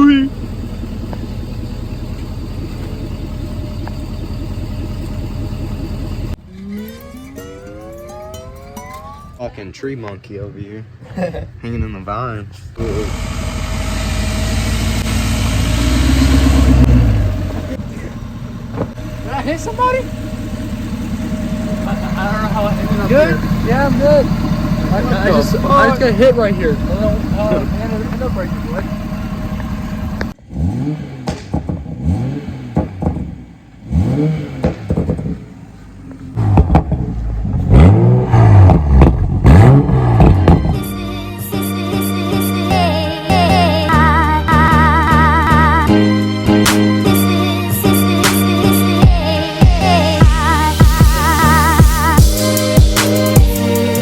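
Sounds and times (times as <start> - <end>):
vehicle engine revving: 0.0 - 7.9, 12.7 - 54.0
clatter: 0.3 - 6.4, 31.2 - 40.8.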